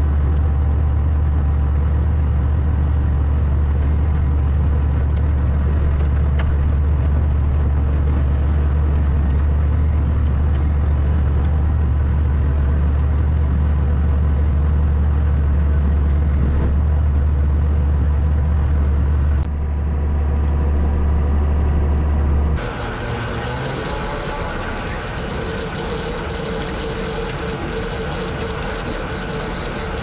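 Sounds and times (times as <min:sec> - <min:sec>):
tractor engine drone: 0:00.0 - 0:30.0
rotary cutter whine: 0:22.6 - 0:30.0.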